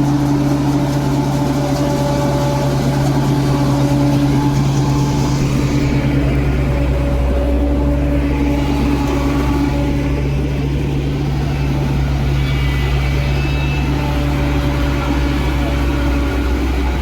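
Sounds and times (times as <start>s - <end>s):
combine harvester engine droning: 0.0s - 17.0s.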